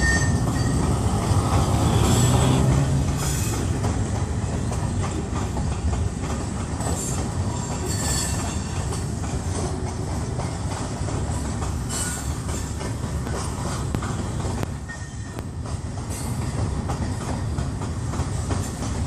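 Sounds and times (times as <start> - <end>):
high-pitched wheel squeals: 0.0 - 0.8
train wheels rumbling on rail: 0.0 - 19.0
wheels clicking over rail joints: 0.0 - 19.0.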